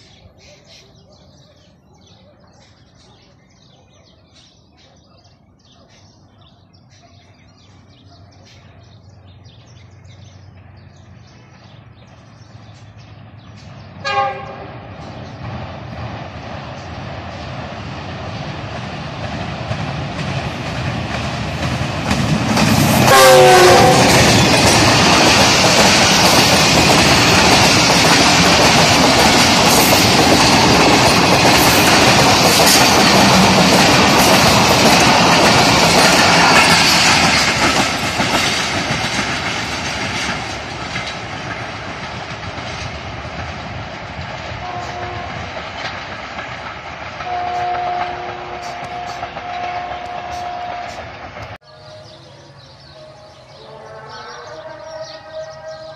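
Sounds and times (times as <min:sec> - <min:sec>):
locomotive horn: 0:14.0 - 0:14.8, 0:23.0 - 0:24.4, 0:44.6 - 0:45.5, 0:47.2 - 0:52.3, 0:53.0 - 0:55.9
train wheels clattering: 0:15.0 - 0:52.1.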